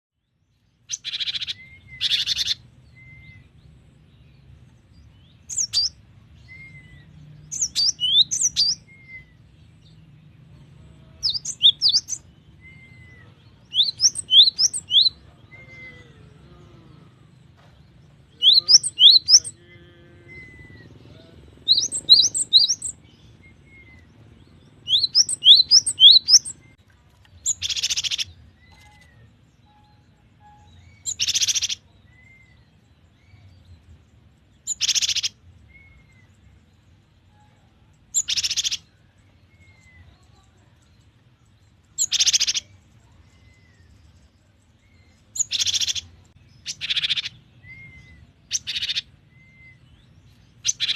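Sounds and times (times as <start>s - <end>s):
harsh buzzy bird calls: 0.8s - 2.6s, 18.4s - 23.0s, 31.0s - 31.9s, 34.6s - 35.4s, 38.0s - 38.9s, 41.9s - 43.2s, 45.3s - 49.9s
bird whistling song: 0.9s - 3.5s, 5.3s - 9.5s, 11.2s - 16.1s, 18.3s - 19.6s, 21.6s - 26.8s, 27.4s - 33.5s, 34.6s - 36.6s, 37.2s - 38.9s, 41.9s - 44.0s, 44.8s - 50.9s.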